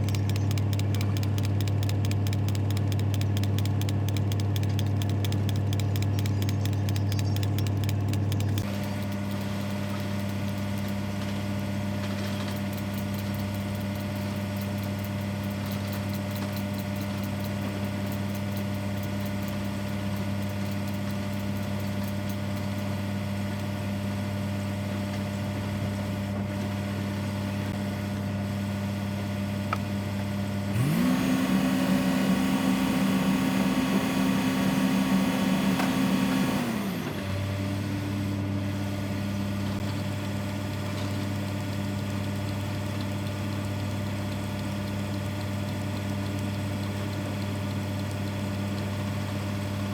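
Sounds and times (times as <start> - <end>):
excavator diesel engine idling and revving: 30.8 - 39.9.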